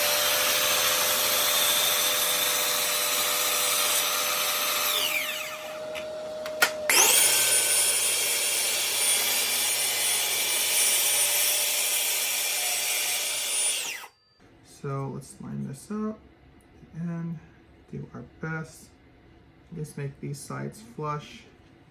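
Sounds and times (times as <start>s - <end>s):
power tool winding down: 0.0s - 14.2s
power tool high whine: 0.0s - 14.4s.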